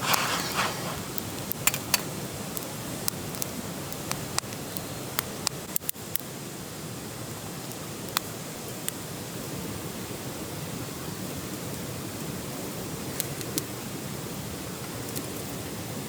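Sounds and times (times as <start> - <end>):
fire crackling and popping: 0.0 - 6.3
campfire hissing: 0.0 - 16.0.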